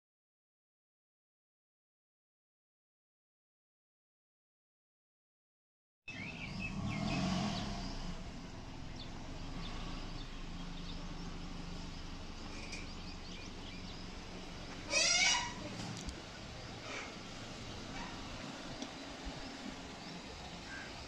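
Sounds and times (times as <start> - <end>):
car engine idling: 6.1 - 21.0.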